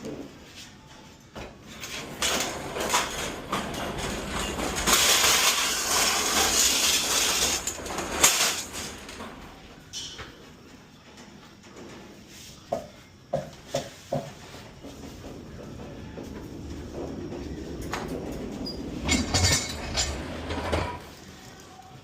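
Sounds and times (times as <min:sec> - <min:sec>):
pallet jack rolling and rattling: 0:01.4 - 0:10.2, 0:14.4 - 0:21.5
scraping: 0:01.6 - 0:10.0, 0:14.4 - 0:21.4.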